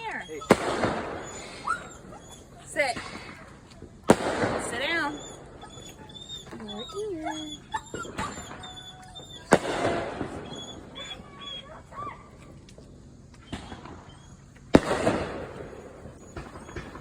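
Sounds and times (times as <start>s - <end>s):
dog whimpering faintly: 0.0s - 4.0s, 4.6s - 12.5s, 15.5s - 17.0s
fireworks bangs: 0.0s - 5.6s, 9.4s - 11.3s, 13.4s - 17.0s.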